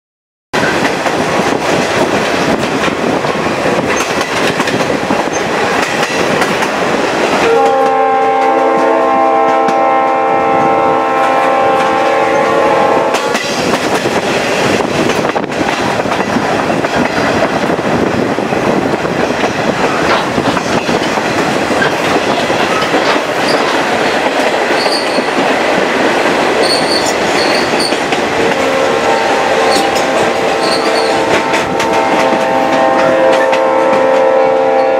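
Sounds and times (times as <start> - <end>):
train wheels rumbling and clattering: 0.6 - 34.9
locomotive horn chord: 7.4 - 13.4, 28.5 - 34.9.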